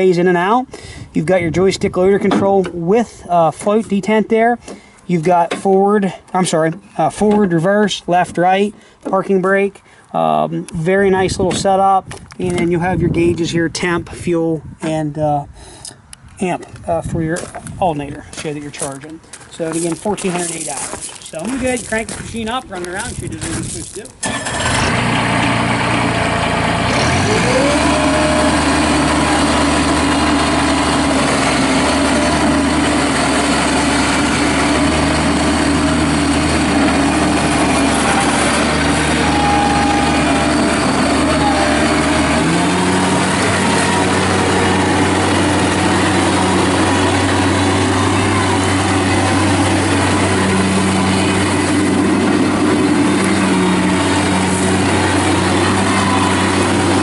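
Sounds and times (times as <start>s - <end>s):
diesel engine running: 18.6s - 57.0s.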